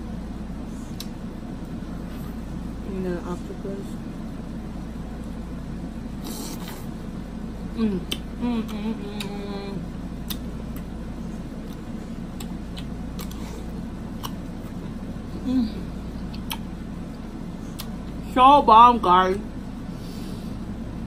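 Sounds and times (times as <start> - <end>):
low room hum: 0.0 - 21.0
person humming: 7.8 - 9.9, 15.3 - 16.0.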